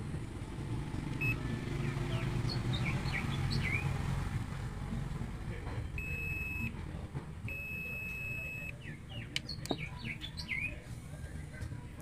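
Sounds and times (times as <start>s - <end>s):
electronic beeps: 1.2s - 1.4s, 6.0s - 6.7s, 7.5s - 8.8s.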